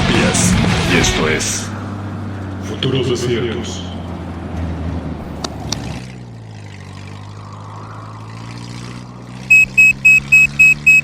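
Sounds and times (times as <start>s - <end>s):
vehicle engine humming: 0.0s - 11.0s
high electronic beep: 9.5s - 11.0s.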